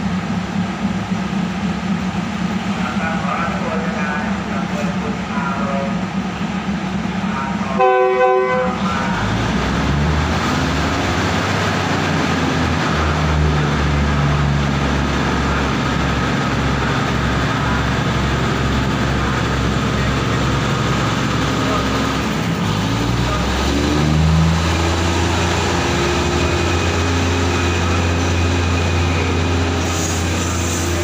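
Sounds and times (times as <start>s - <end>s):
diesel railcar engines rumbling: 0.0s - 31.0s
train horn blast: 7.7s - 9.2s.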